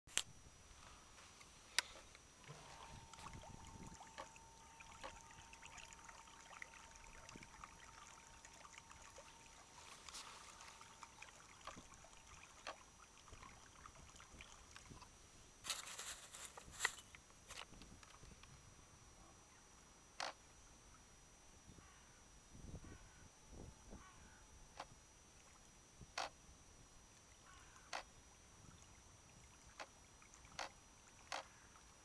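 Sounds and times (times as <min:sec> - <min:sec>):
small electric motor whine: 0:00.6 - 0:12.8
water trickling and lapping: 0:00.9 - 0:18.5, 0:27.2 - 0:32.0.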